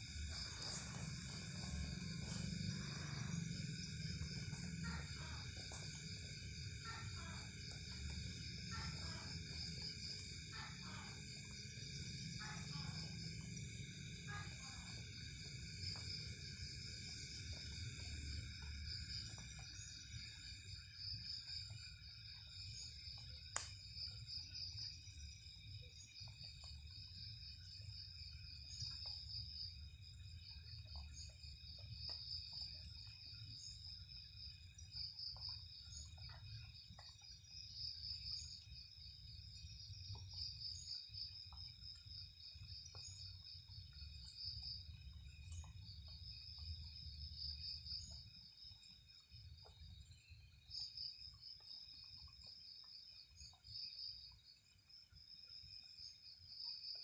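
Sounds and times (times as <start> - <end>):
low rumble: 0.0 - 6.8
crickets chirping: 0.0 - 57.0
faint ticks: 23.1 - 24.0, 39.9 - 48.3.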